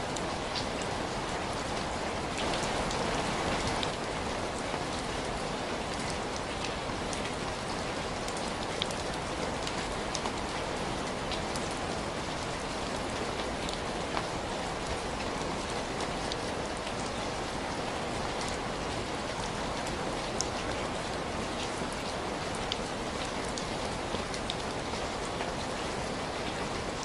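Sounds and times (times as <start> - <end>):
sharp ticks of raindrops: 0.0 - 27.0
steady rain falling: 0.0 - 27.0.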